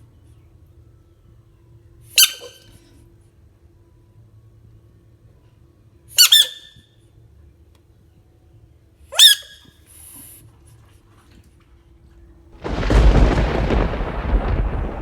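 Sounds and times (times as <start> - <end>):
high-pitched animal squeaks: 2.1 - 2.7, 6.2 - 6.8, 9.1 - 9.7.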